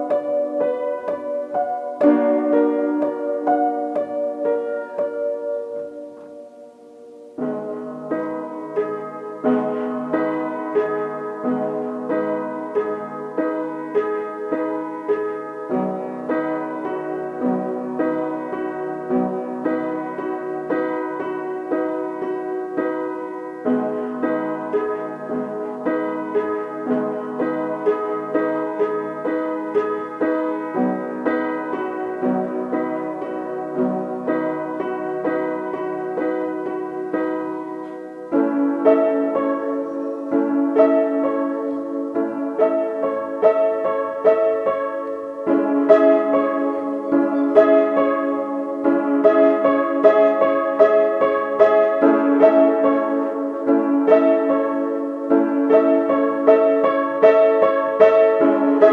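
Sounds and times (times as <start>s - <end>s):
piano melody: 0.0s - 58.9s.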